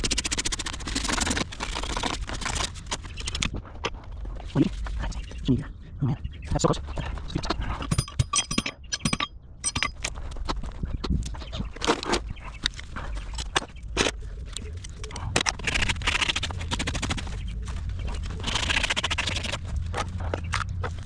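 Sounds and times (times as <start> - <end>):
metal tools tapping and clinking: 7.8 - 10.1.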